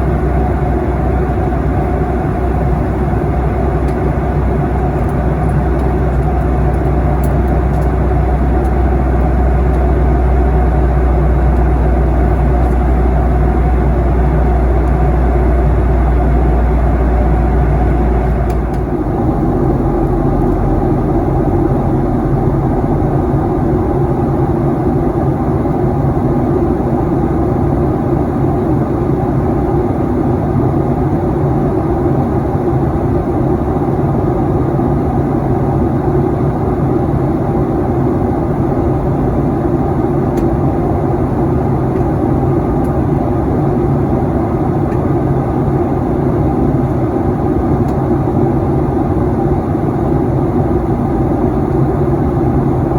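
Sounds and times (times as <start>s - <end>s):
deep low rumble: 0.0s - 28.6s, 50.6s - 52.9s
jet cabin drone: 0.0s - 52.9s.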